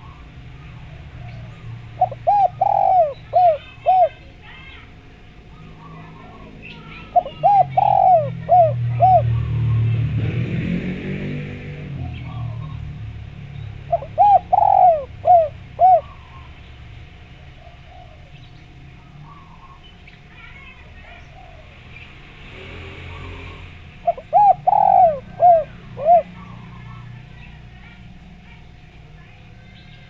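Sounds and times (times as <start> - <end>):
dove cooing: 0.0 - 30.0
faint steady high tone: 24.7 - 30.0.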